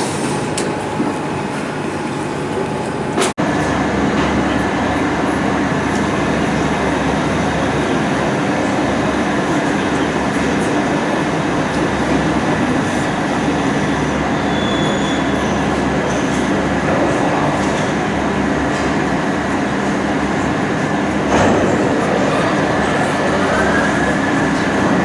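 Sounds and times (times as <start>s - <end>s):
lathes humming and whirring: 0.0s - 25.0s.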